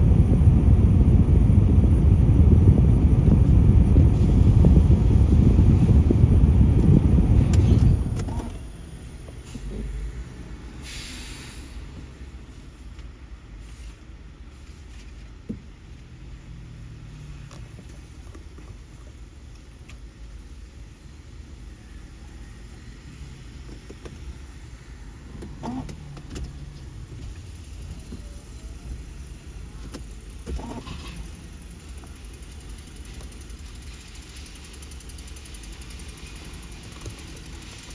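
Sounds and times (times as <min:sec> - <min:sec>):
truck diesel engine rumbling: 0:00.0 - 0:13.8, 0:20.4 - 0:37.9.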